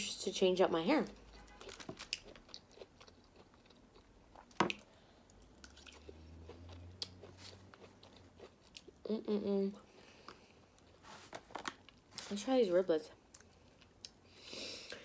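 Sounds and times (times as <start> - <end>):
person chewing: 1.2 - 11.0, 13.3 - 15.0.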